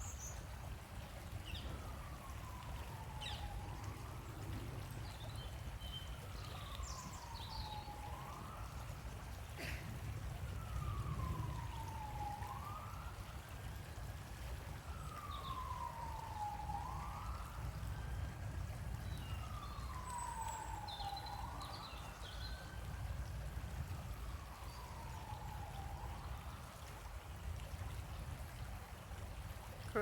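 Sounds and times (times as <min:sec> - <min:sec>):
siren wailing: 0:01.6 - 0:05.1, 0:06.2 - 0:09.4, 0:10.4 - 0:26.8.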